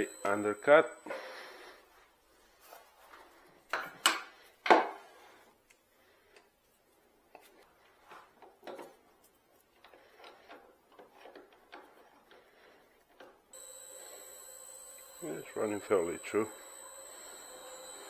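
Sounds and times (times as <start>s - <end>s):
lathe motor whining: 0.0s - 1.7s, 13.6s - 18.0s.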